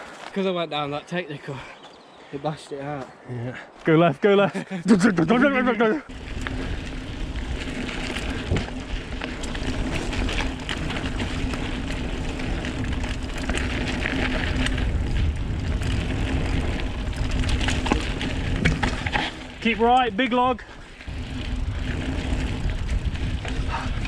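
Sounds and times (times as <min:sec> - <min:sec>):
bike tyre and trail noise: 0:00.0 - 0:24.0
bike rattling over bumps: 0:05.0 - 0:24.0.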